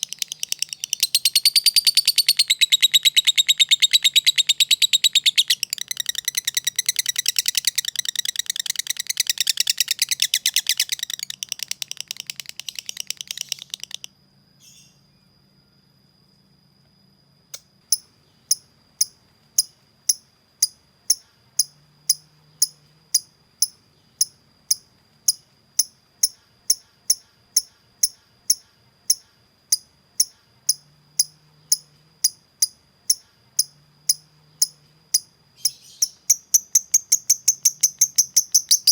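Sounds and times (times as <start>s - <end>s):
bird ticking call: 0.0s - 14.1s, 17.9s - 38.9s
bird chattering trill: 0.0s - 15.0s, 35.6s - 38.9s.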